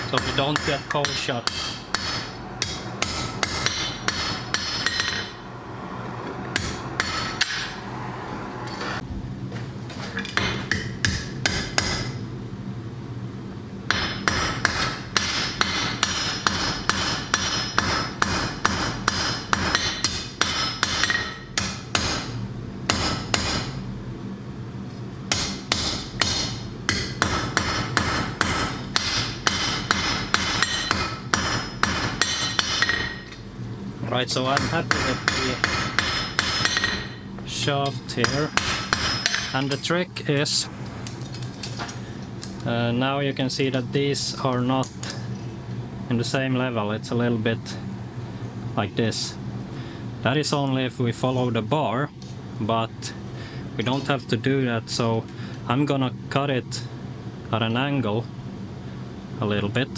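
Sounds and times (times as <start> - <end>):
hammer ringing on anvil: 0.0 - 5.4, 6.6 - 7.8, 13.9 - 22.2, 25.3 - 33.4, 34.6 - 37.2, 38.2 - 39.8.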